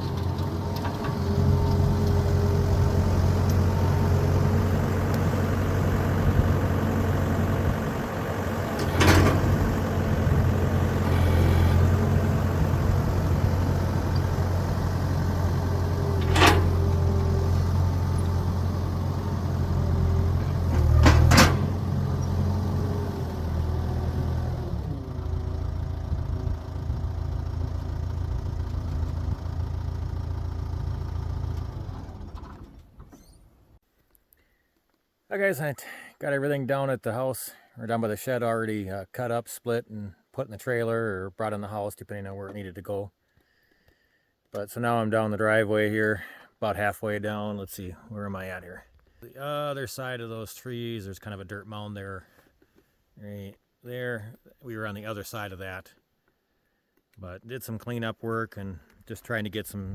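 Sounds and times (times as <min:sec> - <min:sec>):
engine idling: 0:00.0 - 0:32.2.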